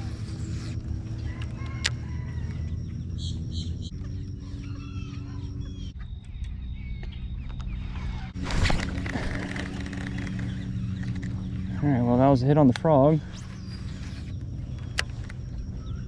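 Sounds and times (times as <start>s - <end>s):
birds clucking: 0.0s - 6.0s, 7.6s - 11.9s
steady low hum: 0.0s - 16.0s.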